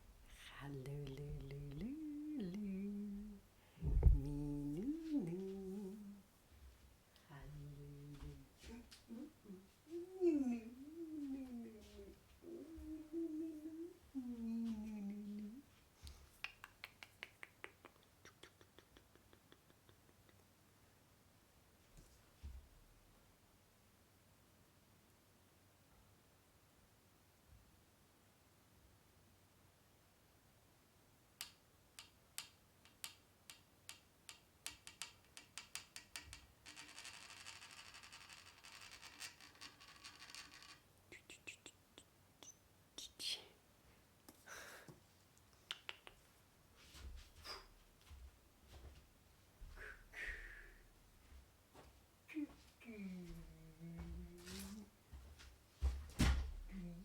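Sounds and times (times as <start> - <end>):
woman humming: 0.2 - 6.3, 7.2 - 15.7, 49.8 - 50.8, 52.3 - 55.0, 56.6 - 57.0.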